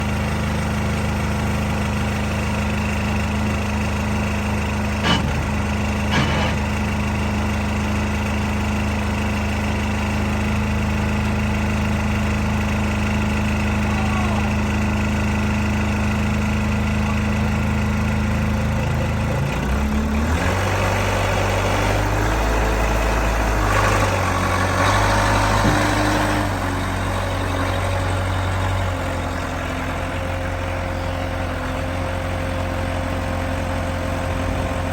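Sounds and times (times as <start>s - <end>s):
tractor engine idling: 0.0s - 34.9s
sharp knocks: 5.0s - 6.8s.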